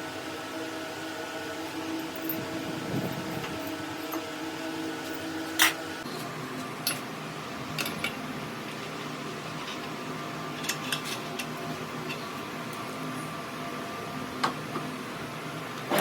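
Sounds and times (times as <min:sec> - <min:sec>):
machine motor humming: 0:01.0 - 0:06.0.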